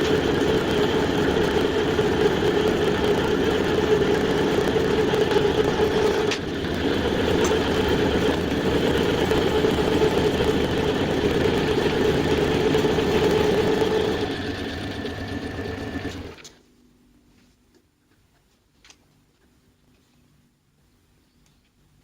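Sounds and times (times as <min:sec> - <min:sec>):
power tool motor running: 0:00.0 - 0:16.5.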